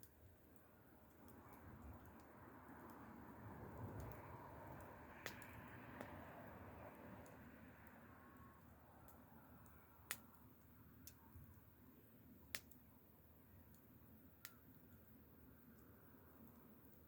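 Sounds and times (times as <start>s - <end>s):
campfire crackling: 0.0s - 17.0s
sharp pops of burning wood: 3.7s - 6.2s, 9.0s - 11.6s, 12.4s - 12.9s.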